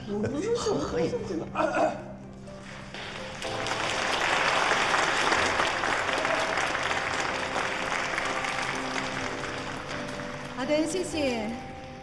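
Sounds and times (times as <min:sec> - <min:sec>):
faint background music: 0:00.0 - 0:12.0
audience applauding: 0:02.6 - 0:11.3.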